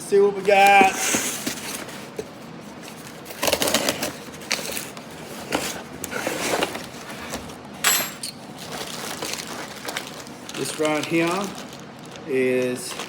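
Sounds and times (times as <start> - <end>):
cardboard rustling and scraping: 0.3 - 7.6.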